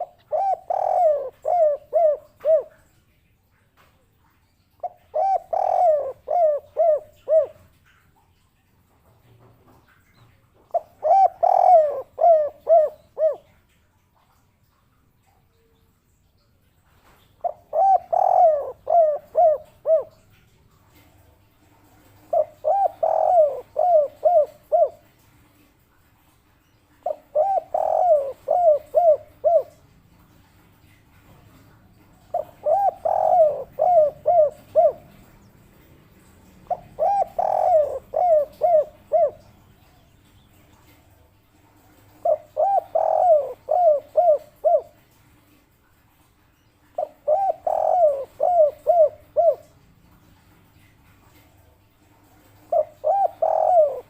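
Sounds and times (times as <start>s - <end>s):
dove cooing: 0.0s - 3.0s, 4.8s - 7.9s, 10.7s - 13.6s, 17.4s - 21.1s, 21.9s - 25.2s, 27.0s - 30.4s, 31.2s - 40.1s, 42.0s - 45.1s, 46.9s - 49.8s, 52.2s - 54.0s.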